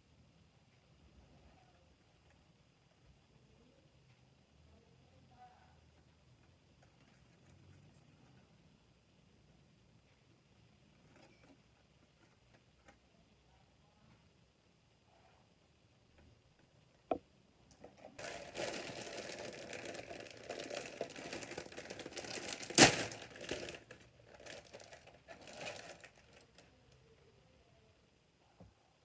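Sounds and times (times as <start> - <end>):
loud plastic crack: 18.2 - 26.6
plastic packaging crinkling: 18.2 - 26.7.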